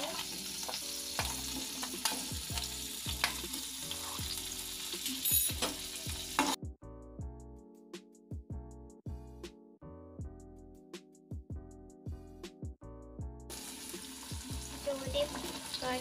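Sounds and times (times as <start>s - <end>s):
potatoes sizzling in oil: 0.0s - 6.6s, 13.5s - 16.0s
background music: 0.0s - 16.0s.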